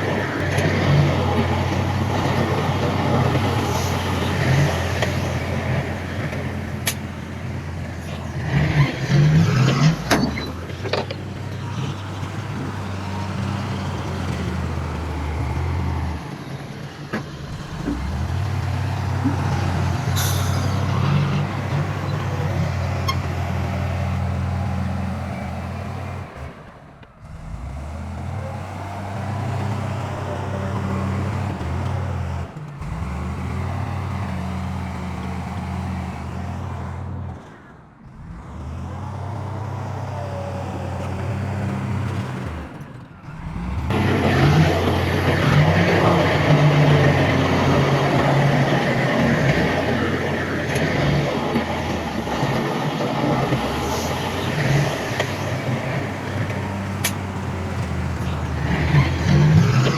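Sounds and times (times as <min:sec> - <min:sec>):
diesel engines droning: 0:00.0 - 0:59.9.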